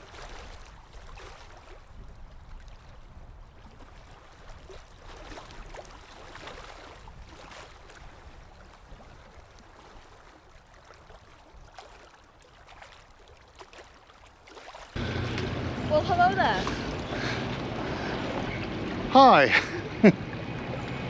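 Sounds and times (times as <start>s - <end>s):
low wind rumble: 15.0s - 21.0s.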